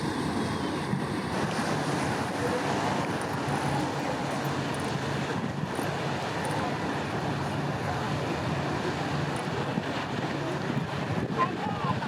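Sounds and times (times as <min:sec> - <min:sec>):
boat engine hum: 0:00.0 - 0:12.0
wind: 0:00.0 - 0:12.0.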